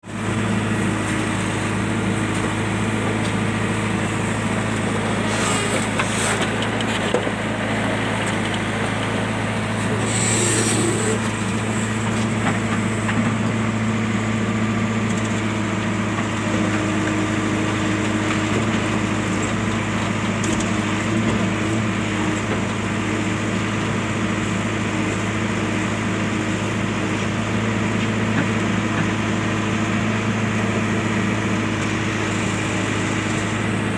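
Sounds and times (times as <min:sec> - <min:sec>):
diesel engine running: 0:00.0 - 0:33.9
brief hissing: 0:10.0 - 0:11.2.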